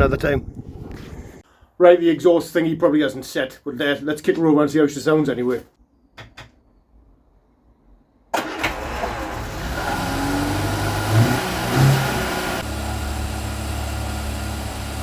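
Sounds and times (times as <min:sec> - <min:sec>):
car engine starting and idling: 0:08.3 - 0:15.0
engine revving: 0:08.4 - 0:15.0
exhaust burble: 0:08.4 - 0:15.0.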